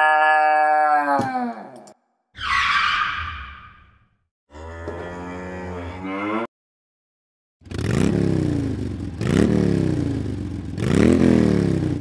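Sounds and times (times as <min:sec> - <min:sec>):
engine revving: 0:07.6 - 0:12.0.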